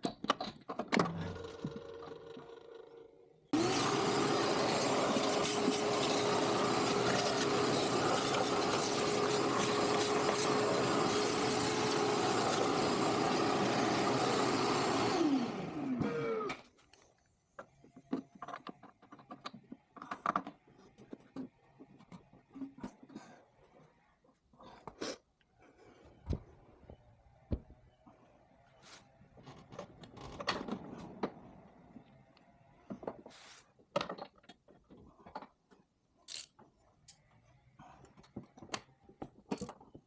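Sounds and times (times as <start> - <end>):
motor whining and winding down: 3.6 - 16.6.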